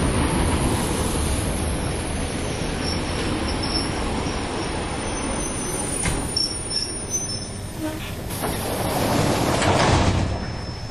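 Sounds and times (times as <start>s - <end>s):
train wheels rumbling: 0.0s - 10.9s
high brake squeals: 2.4s - 8.2s, 10.4s - 10.9s.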